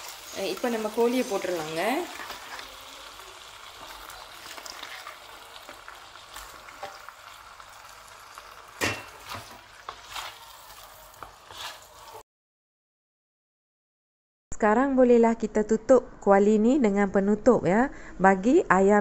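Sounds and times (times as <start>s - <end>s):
chicken sizzling in hot oil: 0.0s - 12.2s.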